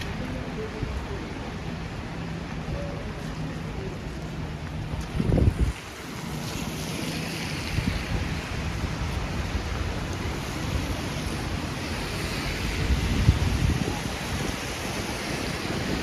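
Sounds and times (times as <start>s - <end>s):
rain on street: 0.0s - 16.0s
wind buffeting microphone: 4.0s - 6.3s, 7.6s - 16.0s.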